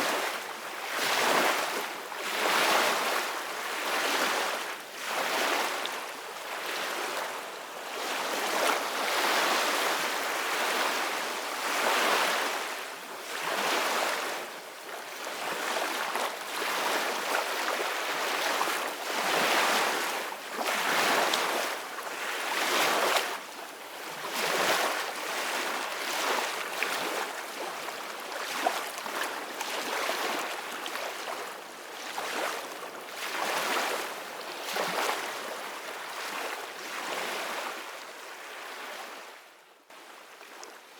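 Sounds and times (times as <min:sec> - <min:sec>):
ocean waves breaking on shore: 0:24.2 - 0:39.3.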